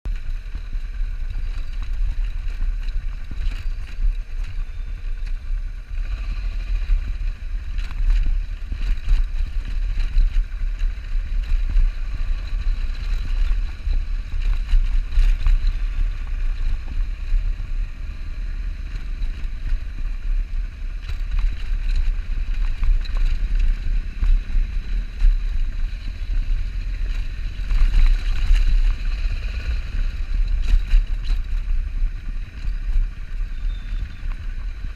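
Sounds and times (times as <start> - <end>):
motorcycle engine: 0.1 - 34.9
road noise: 0.1 - 34.9
wind buffeting microphone: 0.1 - 34.9.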